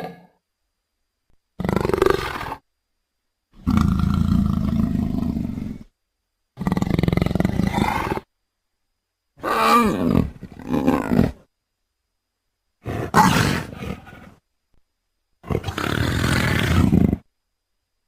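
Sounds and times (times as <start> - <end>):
big cat roars and snarls: 1.6 - 2.6, 3.6 - 5.9, 6.6 - 8.3, 9.4 - 11.5, 12.8 - 14.4, 15.4 - 17.3.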